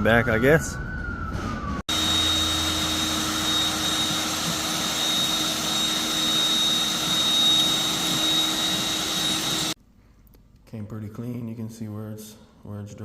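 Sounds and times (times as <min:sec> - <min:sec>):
floor-cleaning machine running: 0:01.9 - 0:09.8.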